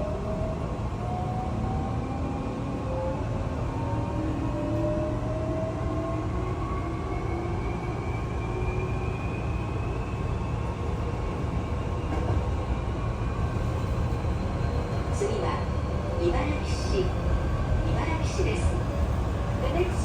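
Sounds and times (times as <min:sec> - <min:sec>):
train wheels rumbling on rails: 0:10.5 - 0:20.0.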